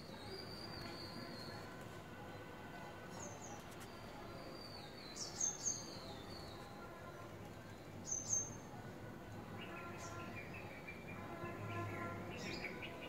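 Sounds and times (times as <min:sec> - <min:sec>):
faint outdoor background: 0:00.0 - 0:13.0
small birds chirping: 0:03.1 - 0:06.6.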